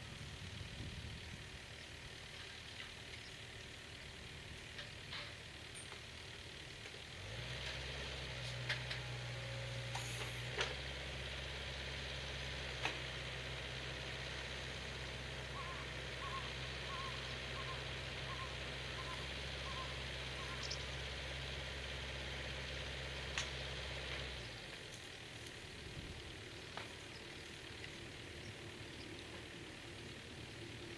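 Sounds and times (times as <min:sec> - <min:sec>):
engine idling: 0:00.0 - 0:30.9
bird calling repeated notes: 0:15.5 - 0:21.0.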